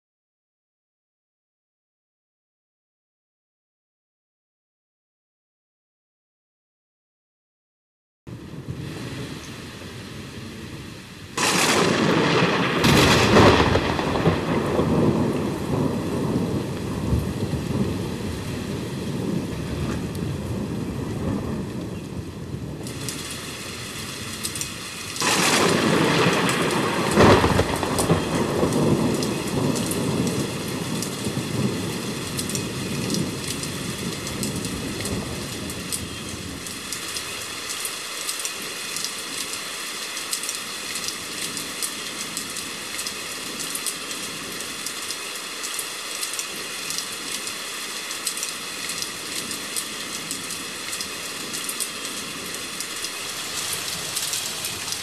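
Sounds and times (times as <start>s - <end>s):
thunder rumbling: 8.3s - 37.6s, 48.9s - 55.0s
steady rain: 8.3s - 55.0s
sharp thunder crack: 11.4s - 23.3s, 25.2s - 36.6s
raindrop clicks: 22.8s - 23.4s, 24.2s - 30.4s, 31.0s - 31.2s, 32.3s - 39.6s, 40.2s - 55.0s.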